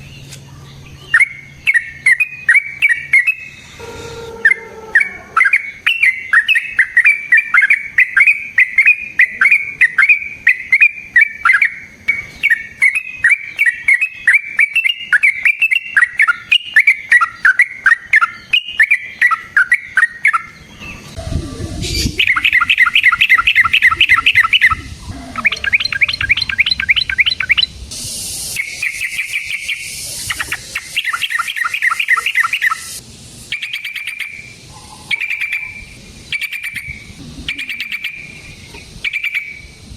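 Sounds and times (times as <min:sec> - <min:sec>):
bird warbling: 0:01.0 - 0:27.8, 0:28.4 - 0:39.6
bird chattering rattles: 0:05.4 - 0:39.6
low rumble: 0:20.8 - 0:28.6, 0:36.9 - 0:38.8.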